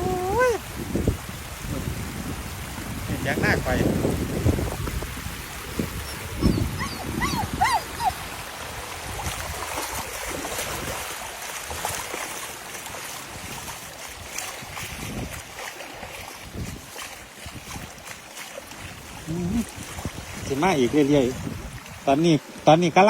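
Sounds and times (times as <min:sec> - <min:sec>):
floodwater rushing: 0:00.0 - 0:23.0
whimpering calls: 0:06.0 - 0:08.2.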